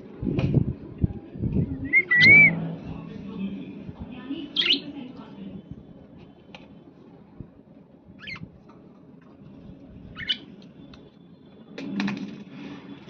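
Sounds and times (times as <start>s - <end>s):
faint background noise: 0.0s - 13.0s
budgerigar chirping: 4.6s - 4.9s.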